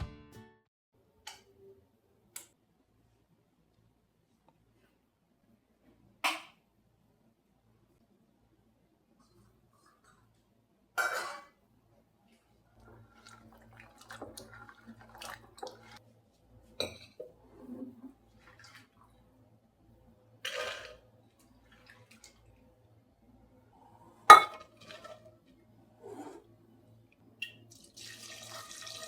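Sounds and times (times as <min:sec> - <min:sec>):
dishes and utensils knocking: 0:24.3 - 0:24.6
dishes clattering: 0:24.3 - 0:25.2.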